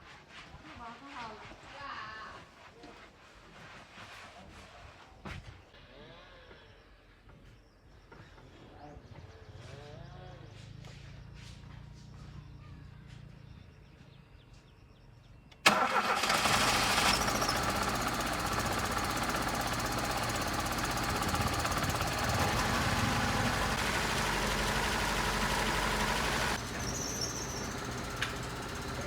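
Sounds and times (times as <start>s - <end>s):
loud machine running: 16.2s - 29.0s.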